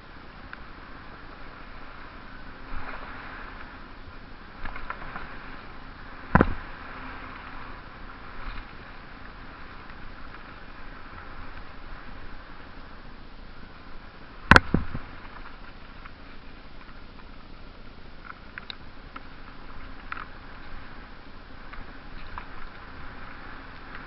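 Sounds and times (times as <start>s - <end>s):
bike tyres rolling on trail: 0.0s - 24.0s.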